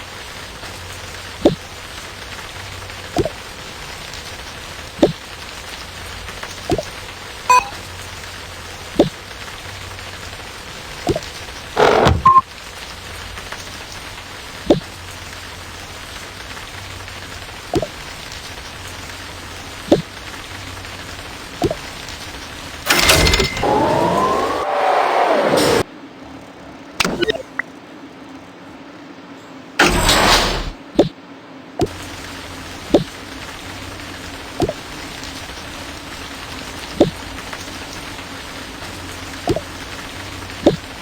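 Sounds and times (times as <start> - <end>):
heavy water drips plinking: 0.0 - 22.9, 31.8 - 41.0
steady rain: 0.0 - 41.0.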